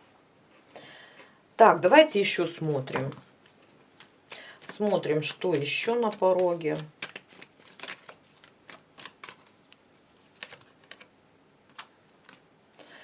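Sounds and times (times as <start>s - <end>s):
cards clicking and snapping: 2.9s - 9.8s, 10.4s - 11.1s, 11.7s - 12.4s.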